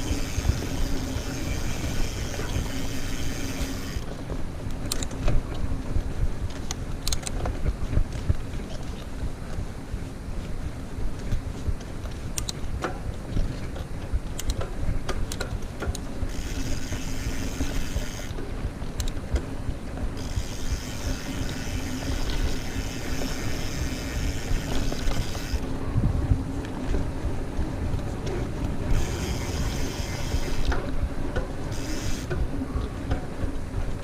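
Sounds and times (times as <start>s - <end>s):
bike tyres rumbling on dirt: 0.0s - 4.5s, 14.8s - 34.0s
wind on microphone: 0.0s - 34.0s
small clicks and rattles: 11.2s - 25.6s.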